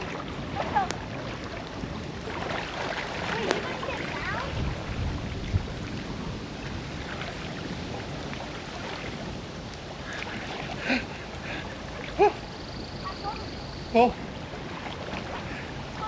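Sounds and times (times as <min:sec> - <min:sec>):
wind buffeting microphone: 0:00.0 - 0:16.0
faint cry: 0:12.2 - 0:12.4.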